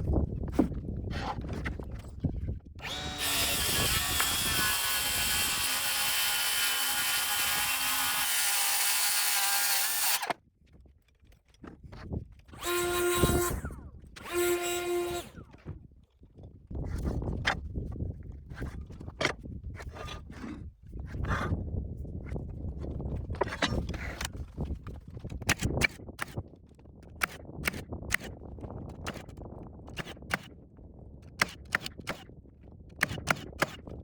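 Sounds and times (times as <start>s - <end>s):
circular saw cutting: 2.8s - 10.3s, 12.6s - 15.4s
power tool motor whirs: 2.8s - 10.3s, 12.6s - 15.7s.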